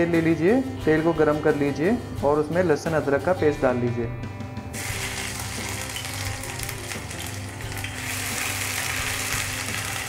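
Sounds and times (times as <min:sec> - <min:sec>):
paste sizzling in hot oil: 0:04.8 - 0:10.0.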